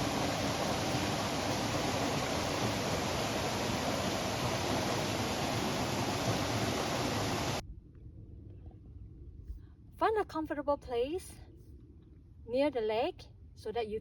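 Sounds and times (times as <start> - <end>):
steady outdoor rushing noise: 0.0 - 7.6.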